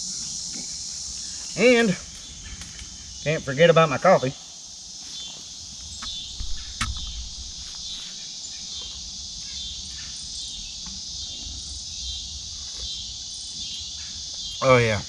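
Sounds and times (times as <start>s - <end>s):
crickets and insects trilling: 0.0s - 15.0s
microphone handling rumble: 5.8s - 8.1s
sharp click: 6.0s - 7.4s.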